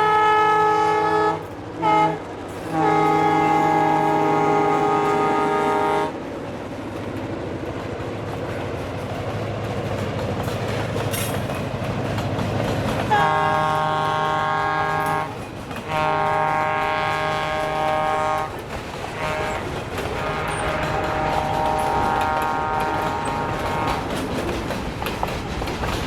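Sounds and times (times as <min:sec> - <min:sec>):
locomotive air horn blasts: 0:00.0 - 0:06.2, 0:13.1 - 0:24.2
locomotive engine rumble: 0:00.0 - 0:26.0
train wheels rumbling: 0:00.0 - 0:26.0.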